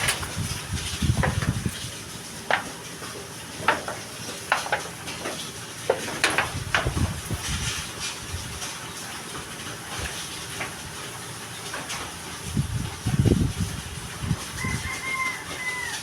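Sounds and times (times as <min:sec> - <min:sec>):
metal pieces knocking: 0:00.0 - 0:00.4, 0:03.6 - 0:07.0.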